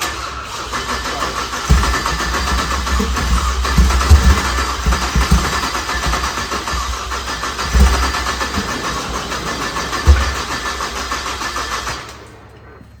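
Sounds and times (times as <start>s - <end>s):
car engine cranking and running: 0.0s - 13.0s
heavy low thumps: 1.7s - 11.3s.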